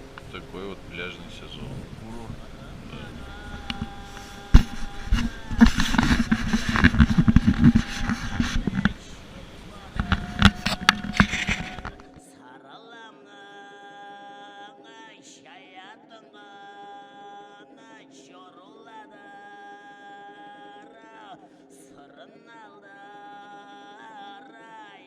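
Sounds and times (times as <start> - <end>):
throat singing: 0.0 - 12.2.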